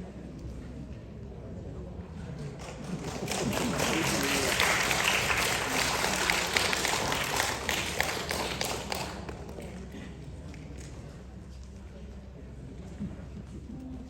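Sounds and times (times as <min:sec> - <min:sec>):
audience applauding: 0:02.5 - 0:09.7.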